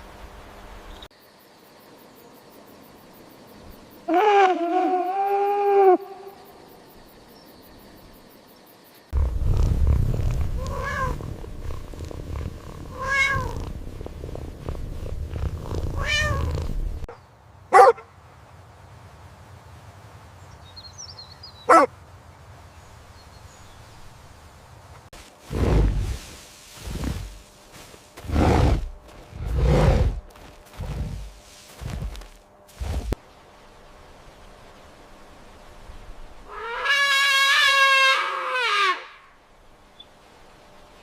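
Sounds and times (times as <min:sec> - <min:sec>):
cat purring: 0:09.2 - 0:17.1
cat meowing: 0:10.6 - 0:11.2, 0:12.9 - 0:13.6, 0:16.0 - 0:16.5.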